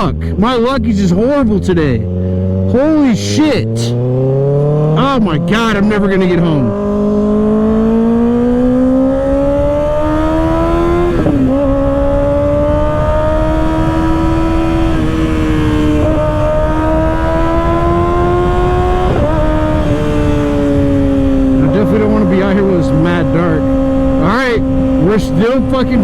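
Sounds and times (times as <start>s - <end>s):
motorcycle engine accelerating: 0.0s - 26.0s
wind noise: 6.6s - 26.0s.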